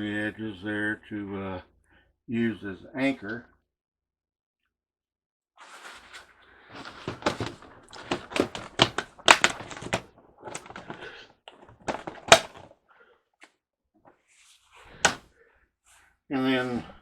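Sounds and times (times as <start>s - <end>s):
handling clicks and knocks: 6.7s - 12.7s, 15.0s - 15.2s.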